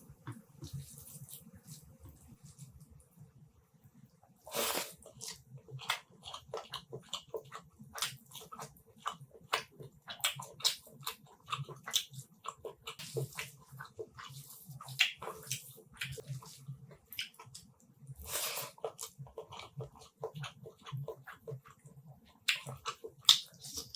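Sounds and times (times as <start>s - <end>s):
wet chewing and lip-smacking: 5.0s - 23.9s.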